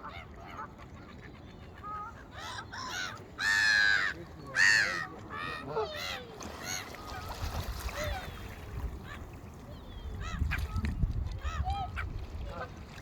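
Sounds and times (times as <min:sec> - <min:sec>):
large birds calling harshly: 0:01.8 - 0:09.3.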